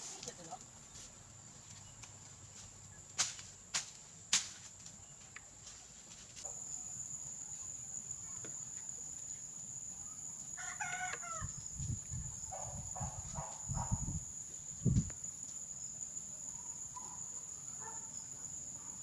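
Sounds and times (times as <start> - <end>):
rooster crowing: 10.6 - 11.6.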